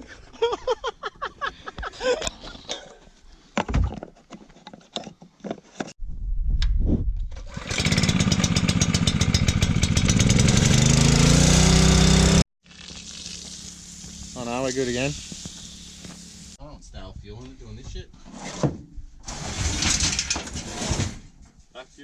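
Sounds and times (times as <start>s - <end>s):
dirt bike engine running: 7.5s - 16.5s.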